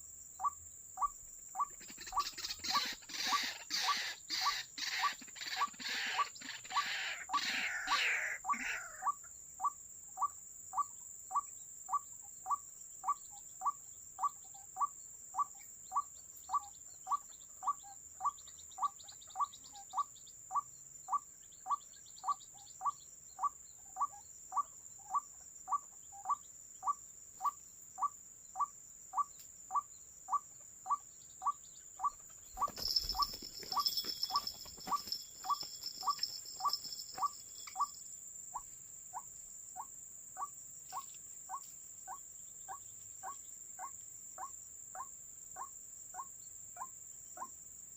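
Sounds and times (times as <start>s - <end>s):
high insect whine: 0.0s - 47.9s
waterhen call notes: 0.4s - 9.2s, 31.4s - 38.0s.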